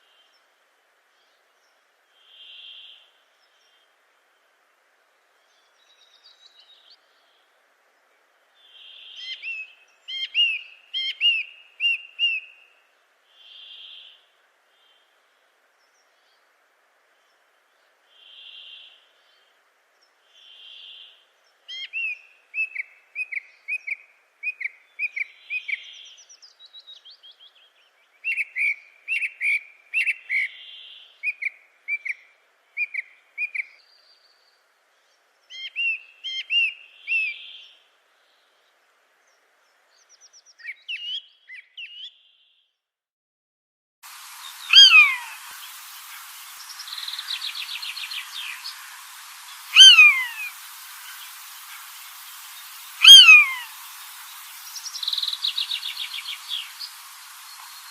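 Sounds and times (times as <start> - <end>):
steady hiss: 0.0 - 33.1, 44.0 - 57.9
soft blurred bird call: 1.2 - 4.0, 17.2 - 42.8, 44.3 - 57.9
bird chirping song: 8.6 - 12.8, 17.2 - 42.8, 44.2 - 57.9.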